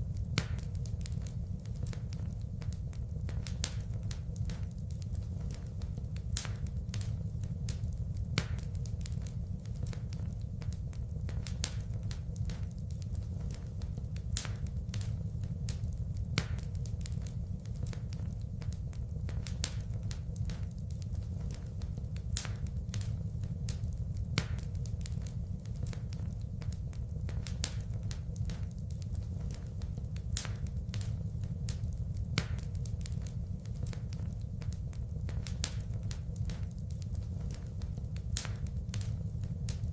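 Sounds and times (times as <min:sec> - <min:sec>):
fire popping: 0:00.0 - 0:39.9
low rumble of flames: 0:00.0 - 0:39.9
wood fire crackling: 0:00.0 - 0:39.9.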